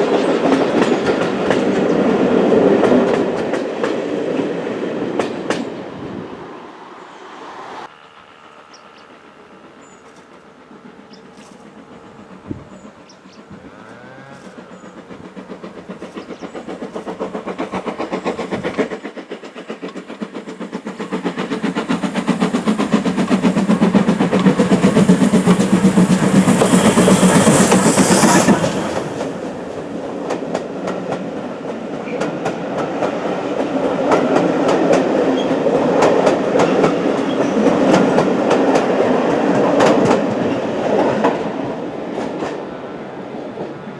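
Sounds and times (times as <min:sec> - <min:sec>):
train wheels clickety-clack: 0:00.0 - 0:05.8, 0:08.0 - 0:43.9
high steam hiss: 0:05.3 - 0:31.6
steam locomotive exhaust beat: 0:07.9 - 0:43.9.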